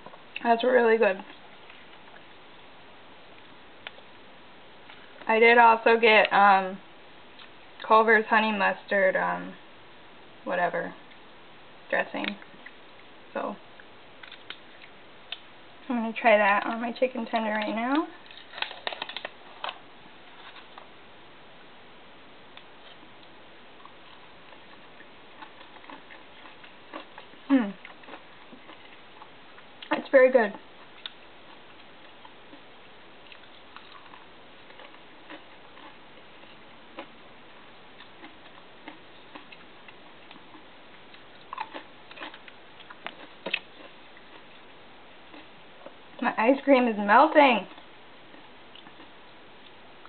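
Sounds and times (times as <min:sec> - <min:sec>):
low steady hiss: 0:00.0 - 0:50.0
food and packaging clicks: 0:16.6 - 0:19.8.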